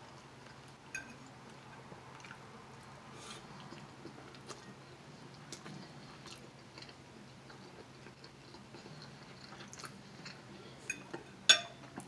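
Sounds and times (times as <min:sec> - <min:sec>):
faint close-up chewing: 0:00.0 - 0:12.0.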